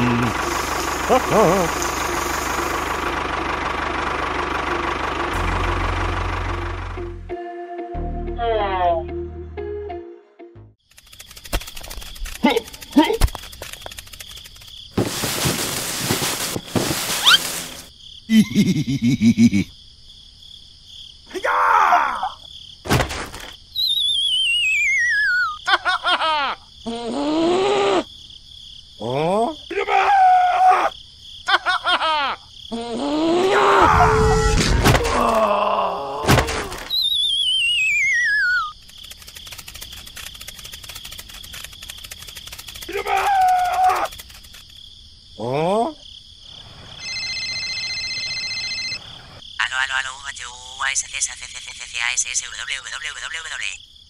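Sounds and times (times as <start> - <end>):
groaning voice: 0.0 - 0.4, 32.7 - 36.7
high insect-like chirring: 0.0 - 3.2, 10.8 - 21.3, 36.8 - 54.0
falling wavering whistle: 23.8 - 25.6, 36.9 - 38.7
electronic phone tone: 47.0 - 49.1
squeaky character chatter: 49.6 - 53.8.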